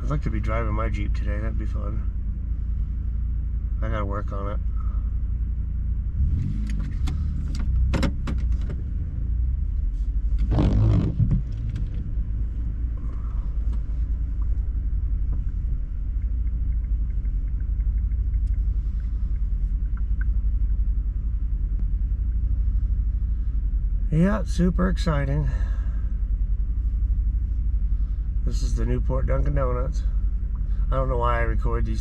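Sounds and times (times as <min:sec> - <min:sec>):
vehicle engine idling: 0:00.0 - 0:32.0
sharp clicks: 0:15.4 - 0:18.7.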